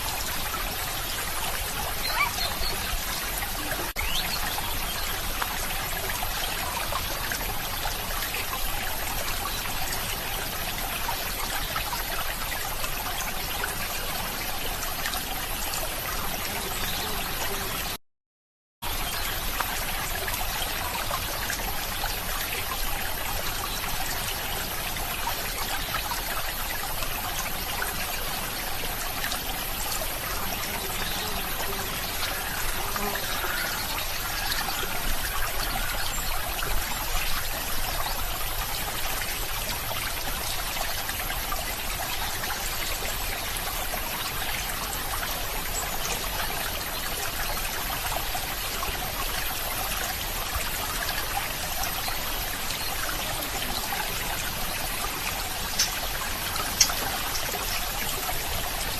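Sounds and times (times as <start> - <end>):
stream of water trickling: 0.0 - 18.0, 18.8 - 58.9.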